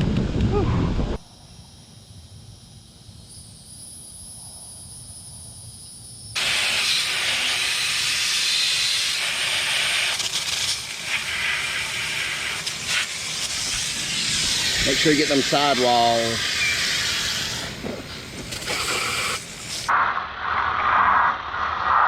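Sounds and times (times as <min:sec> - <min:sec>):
water hose spraying: 0:06.4 - 0:19.9.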